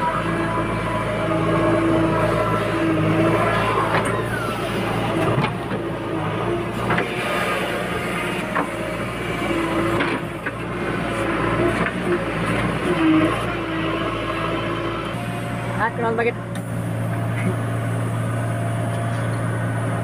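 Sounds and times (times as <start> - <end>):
heavy diesel machinery running: 0.0 - 20.0.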